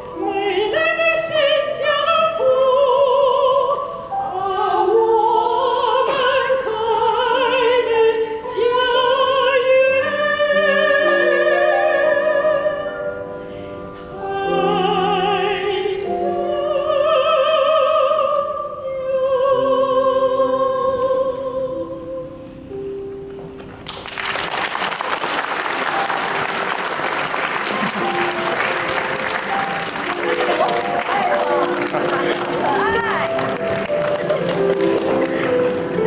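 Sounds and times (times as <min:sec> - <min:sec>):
soprano singing with vibrato: 0:00.0 - 0:22.9
piano accompaniment: 0:00.0 - 0:36.0.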